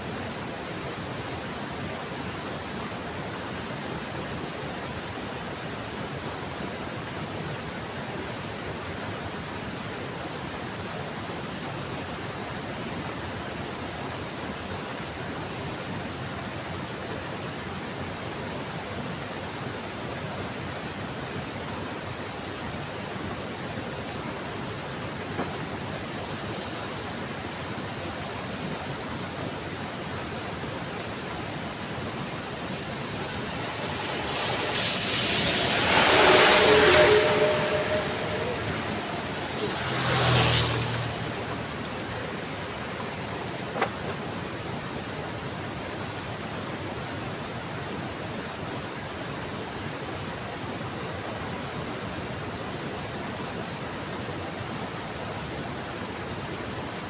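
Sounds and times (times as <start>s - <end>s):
heavy rain hissing: 30.4s - 44.5s.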